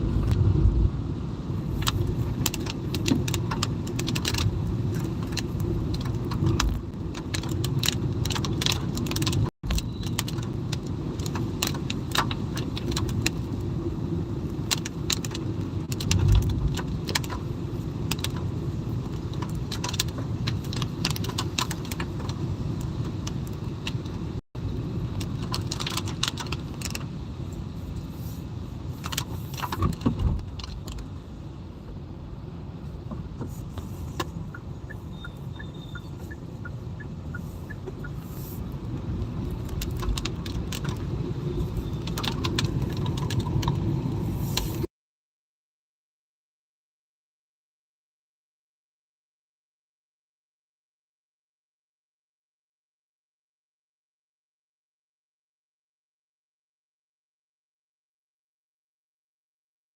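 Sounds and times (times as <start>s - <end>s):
car rumbling on road: 0.0s - 44.9s
raindrops tapping on car: 38.9s - 44.2s.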